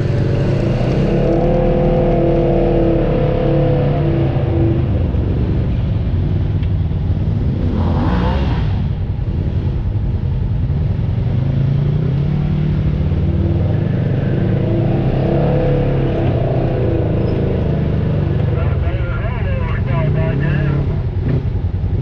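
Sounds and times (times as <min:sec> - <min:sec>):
vehicle engine running under load: 0:00.0 - 0:07.8.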